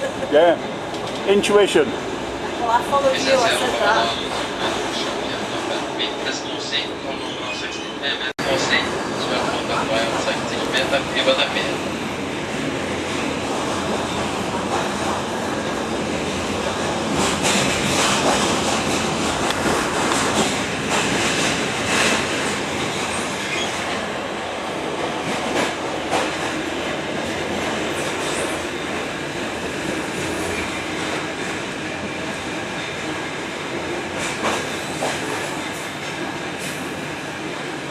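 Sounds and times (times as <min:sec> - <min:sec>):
train wheels rumbling on rail: 0:00.0 - 0:37.9
track clicks and knocks: 0:17.1 - 0:23.1.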